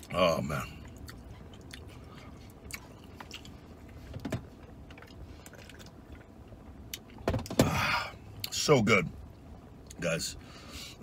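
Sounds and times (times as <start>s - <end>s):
man chewing food: 0.0s - 7.2s.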